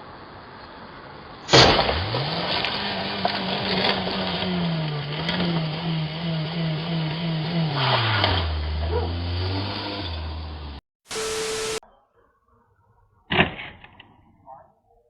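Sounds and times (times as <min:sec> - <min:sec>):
loud crash: 0:01.5 - 0:03.0
vehicle engine revving: 0:01.5 - 0:11.8.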